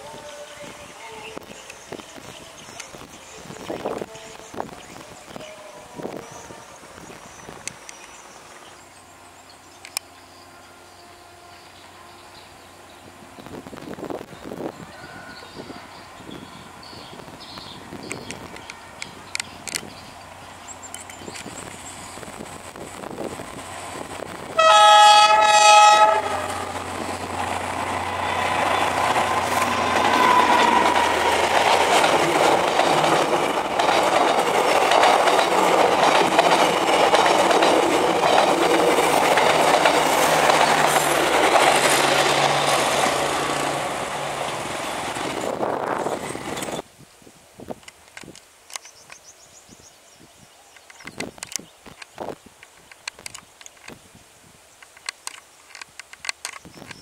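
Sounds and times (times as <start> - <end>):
locomotive horn: 24.6 - 26.9
train wheels clattering on rails: 26.2 - 46.8.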